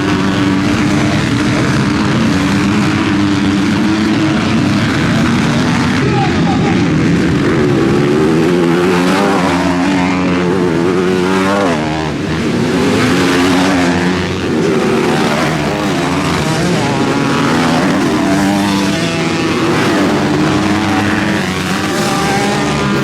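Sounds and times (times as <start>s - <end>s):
motocross bike engines: 0.0s - 23.0s.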